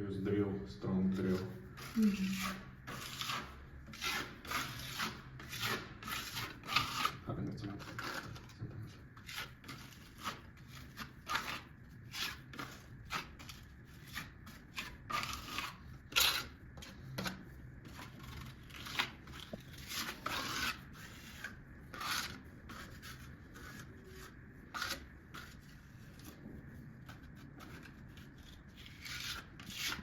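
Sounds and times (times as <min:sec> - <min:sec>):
hand scraping strokes: 0:17.8 - 0:30.0.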